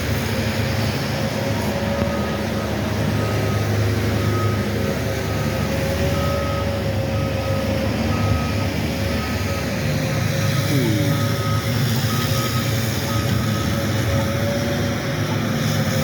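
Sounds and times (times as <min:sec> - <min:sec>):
backup alarm beeping: 0:03.2 - 0:13.9.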